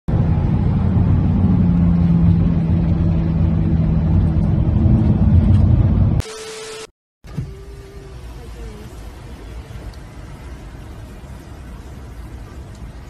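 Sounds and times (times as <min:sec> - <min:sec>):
car engine and exhaust rumble: 0:00.1 - 0:06.2.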